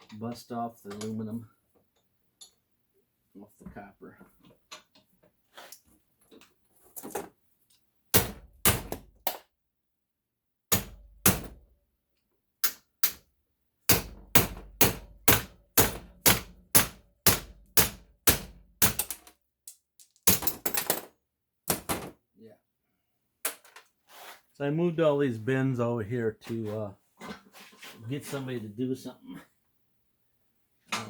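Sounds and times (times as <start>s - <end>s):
hammer striking metal: 13.9s - 19.1s.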